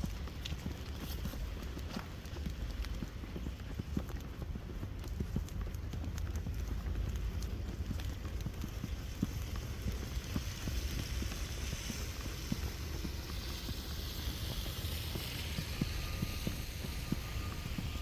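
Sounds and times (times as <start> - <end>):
footsteps in snow: 8.4 - 18.0
hiss: 10.6 - 18.0.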